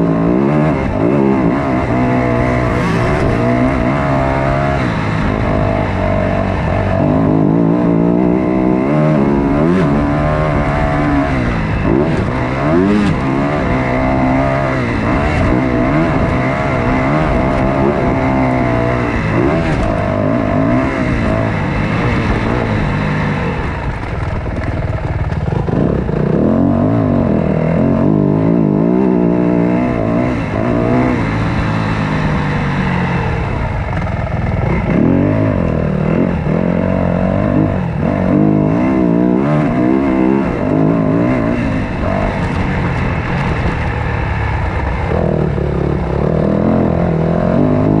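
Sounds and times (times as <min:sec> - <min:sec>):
dirt bike engine revving: 0:00.0 - 0:24.0, 0:25.0 - 0:48.0
rough rushing noise: 0:00.7 - 0:07.0.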